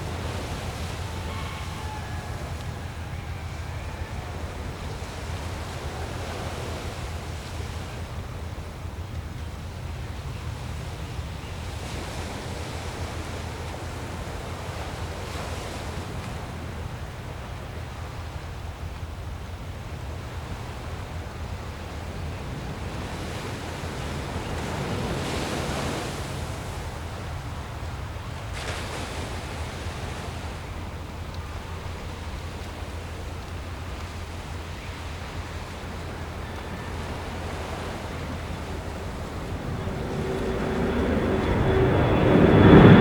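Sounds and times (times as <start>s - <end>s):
constant low hum: 0.0s - 43.0s
steady rushing noise: 30.5s - 43.0s.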